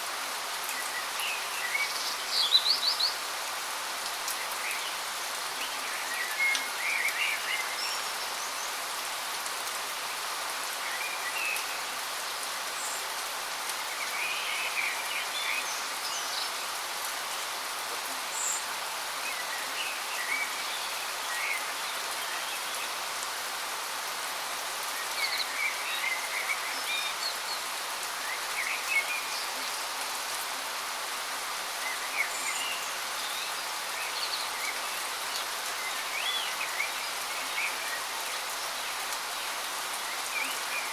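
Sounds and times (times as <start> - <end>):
small birds chirping: 24.8 - 30.4, 31.1 - 40.9.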